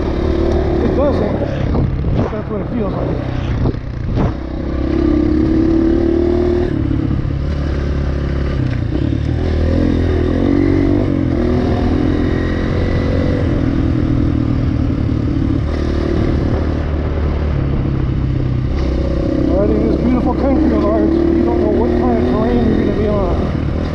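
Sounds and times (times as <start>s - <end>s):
dirt bike engine revving: 0.0s - 17.5s, 18.6s - 23.9s.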